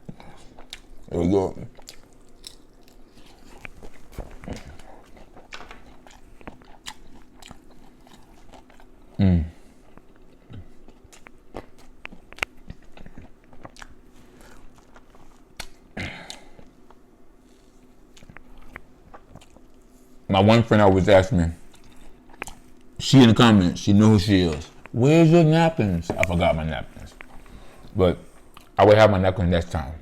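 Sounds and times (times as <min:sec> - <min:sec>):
person chewing wetly: 0:00.0 - 0:20.3, 0:21.6 - 0:23.0, 0:27.0 - 0:28.8.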